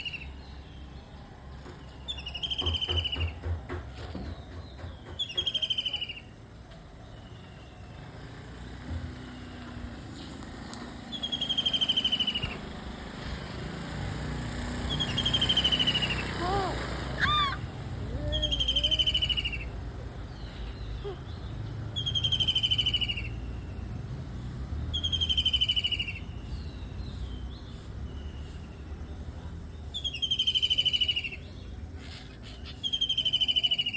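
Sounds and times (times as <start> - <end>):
kingfisher calling: 14.9 - 19.8.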